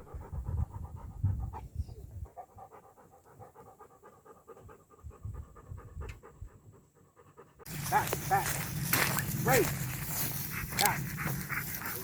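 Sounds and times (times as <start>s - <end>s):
dog panting rapidly: 0.0s - 8.6s, 9.7s - 12.0s.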